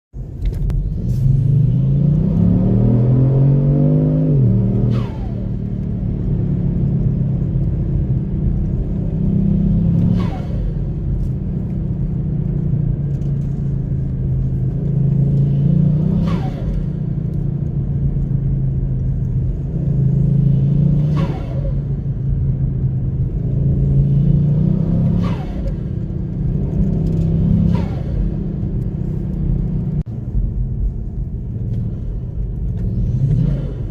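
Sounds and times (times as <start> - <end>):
car engine accelerating: 0.2 - 33.9.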